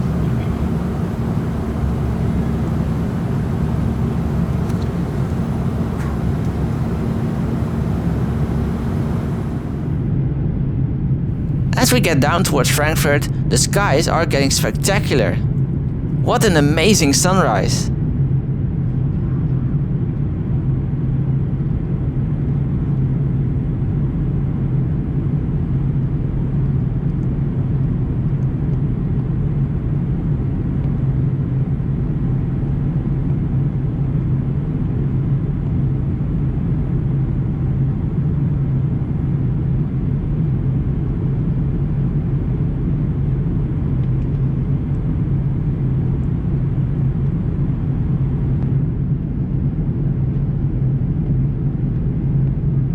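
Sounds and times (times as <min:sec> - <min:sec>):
airflow past fuselage: 0:00.0 - 0:10.0
airplane cabin engine rumble: 0:00.0 - 0:10.0, 0:11.4 - 0:15.4, 0:16.2 - 0:17.9.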